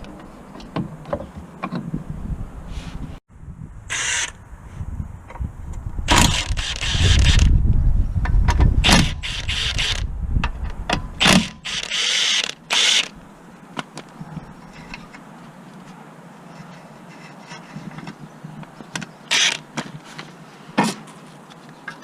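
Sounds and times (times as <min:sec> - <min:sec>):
mechanical tool noise: 0:03.9 - 0:04.4, 0:06.1 - 0:07.5, 0:08.8 - 0:10.1, 0:11.2 - 0:13.2, 0:19.3 - 0:19.6.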